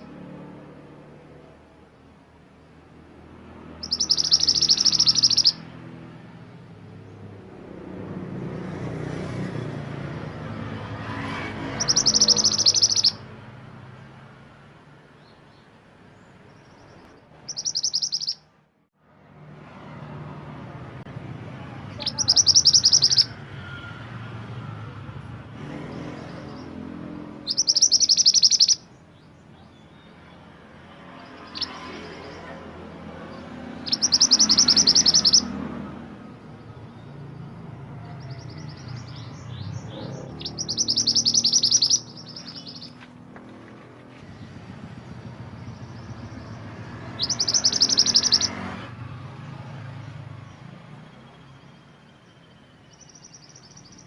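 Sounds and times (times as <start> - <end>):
faint bird calls: 3.8 - 5.6, 11.7 - 13.2, 16.7 - 18.5, 21.9 - 23.4, 27.4 - 29.9, 33.8 - 35.5, 38.0 - 43.1, 45.6 - 48.6
songbird trilling: 3.8 - 5.7, 11.7 - 13.3, 16.6 - 18.5, 21.9 - 23.4, 27.4 - 30.2, 31.2 - 32.5, 33.2 - 35.6, 38.2 - 43.1, 45.5 - 48.6, 51.2 - 54.0.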